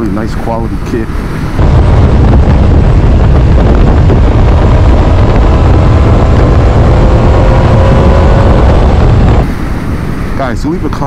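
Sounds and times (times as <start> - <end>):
road noise: 0.0 - 11.0
wind rush over microphone: 0.0 - 11.0
motorcycle engine: 1.4 - 10.2.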